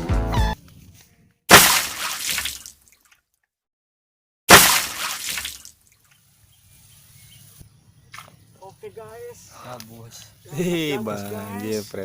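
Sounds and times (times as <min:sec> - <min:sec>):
loud water splash: 0:01.5 - 0:02.8, 0:04.5 - 0:05.7.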